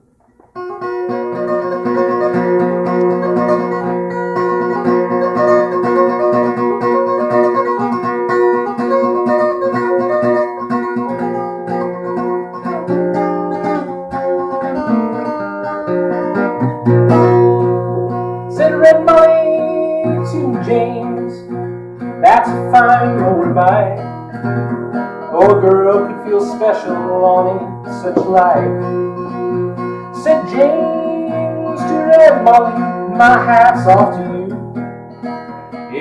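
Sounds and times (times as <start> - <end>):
acoustic guitar picking: 0.0 - 36.0.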